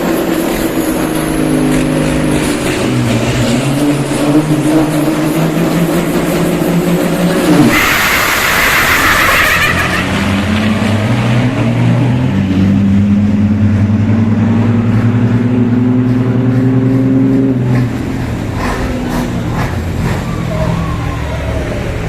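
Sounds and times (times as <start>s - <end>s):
diesel truck engine accelerating: 0.0s - 22.0s
loud hiss: 7.7s - 10.1s.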